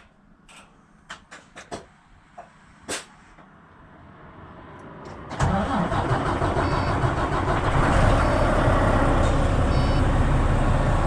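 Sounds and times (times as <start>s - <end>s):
truck engine running: 5.4s - 11.0s
faint high beeps: 8.2s - 8.6s, 9.7s - 10.2s.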